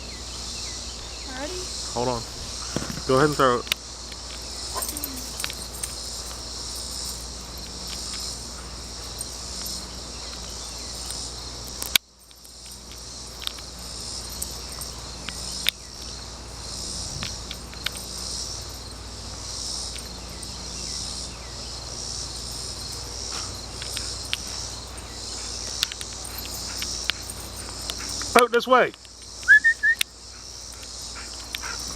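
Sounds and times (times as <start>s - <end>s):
insects chirring: 0.0s - 31.9s.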